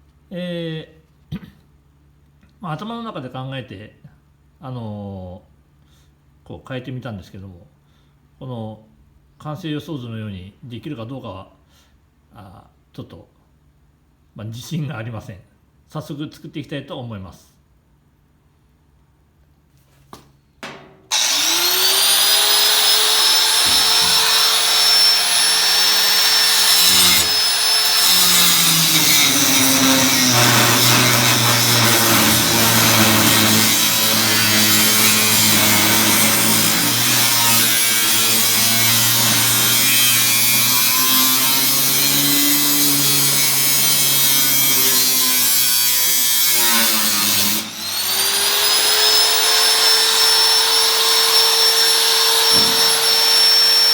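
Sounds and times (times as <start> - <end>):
electric power tool running: 21.1 - 41.8, 47.2 - 53.9.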